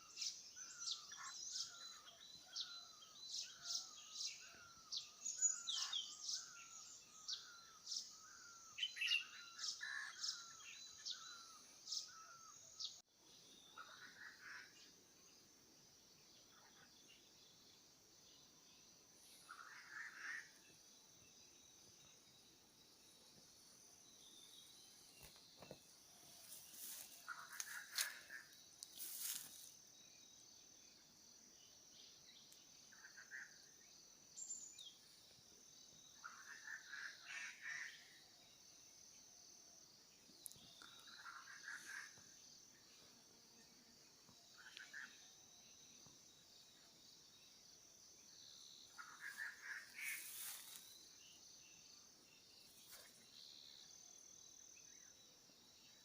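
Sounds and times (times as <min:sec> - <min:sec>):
bird chirps: 0:00.0 - 0:14.9
high-pitched insect drone: 0:49.0 - 0:51.2.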